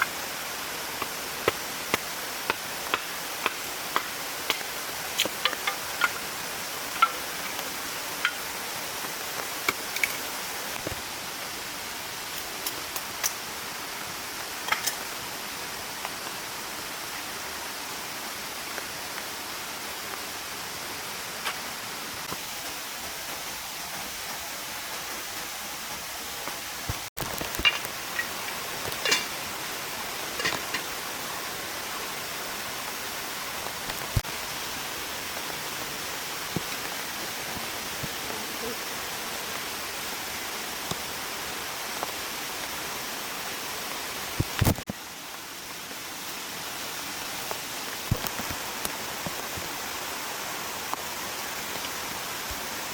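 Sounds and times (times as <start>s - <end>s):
mountain stream rushing: 0.0s - 52.9s.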